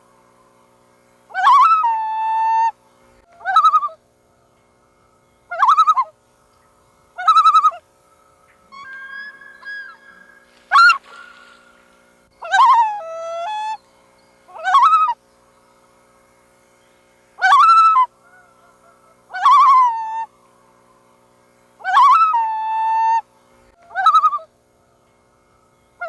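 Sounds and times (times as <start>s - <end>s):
loon calling: 1.3s - 4.0s, 5.5s - 6.2s, 7.1s - 7.9s, 8.5s - 13.8s, 14.5s - 15.2s, 17.4s - 20.3s, 21.8s - 25.0s.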